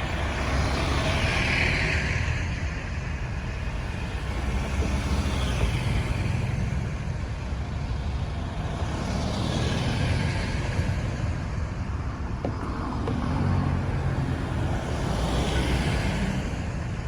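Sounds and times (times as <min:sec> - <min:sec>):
road traffic rumble: 0:00.0 - 0:17.0
vehicles passing: 0:03.4 - 0:17.0.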